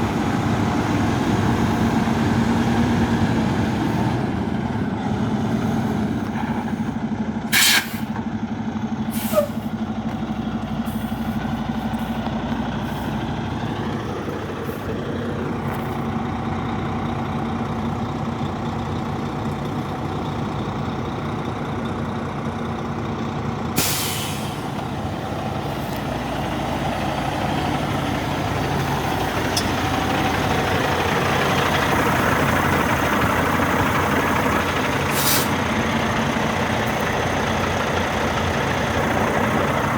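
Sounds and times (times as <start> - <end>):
diesel truck engine running: 0.0 - 39.9
air brake hiss: 7.5 - 8.1, 9.1 - 9.7, 23.8 - 24.8, 35.1 - 35.6.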